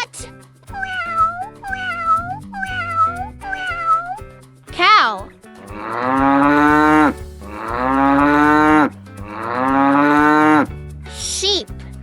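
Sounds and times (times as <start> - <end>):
cat meowing: 0.7 - 4.2
cow mooing: 5.6 - 10.7.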